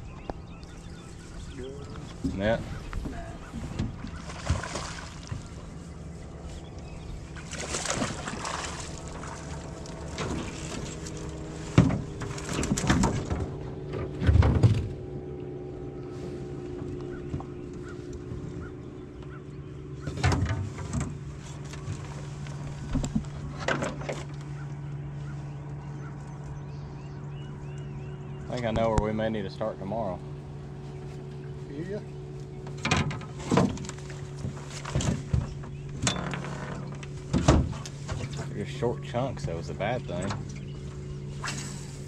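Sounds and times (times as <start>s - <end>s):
low motor hum: 0.0s - 42.0s
sharp knocks and thumps: 11.7s - 15.0s.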